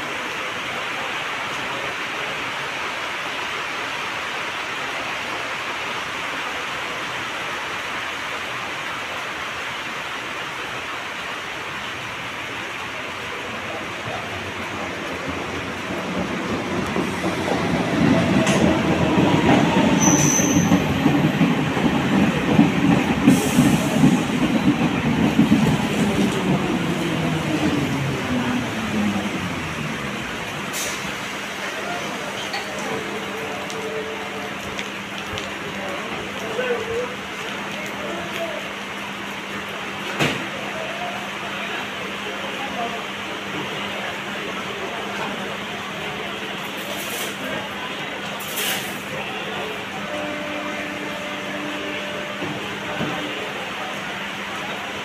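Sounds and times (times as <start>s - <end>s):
rain hiss: 0.0s - 55.0s
train wheels rumbling and clattering: 12.5s - 40.7s, 42.8s - 55.0s
high wheel squeal: 19.7s - 21.0s.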